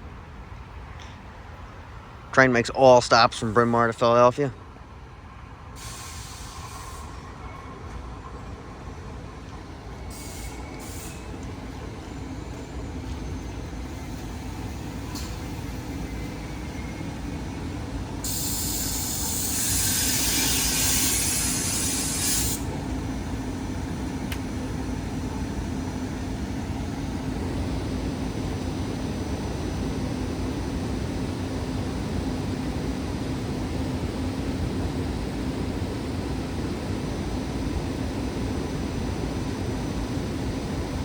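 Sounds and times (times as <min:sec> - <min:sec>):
loud air hiss: 0:05.8 - 0:07.2, 0:10.1 - 0:11.4, 0:18.2 - 0:22.7
train rumbling: 0:06.5 - 0:21.9.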